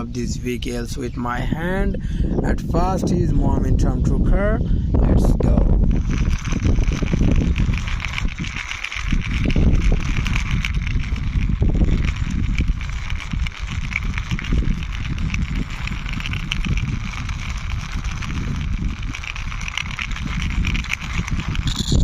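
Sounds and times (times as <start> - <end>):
toy truck wheels rolling: 5.1 - 22.0.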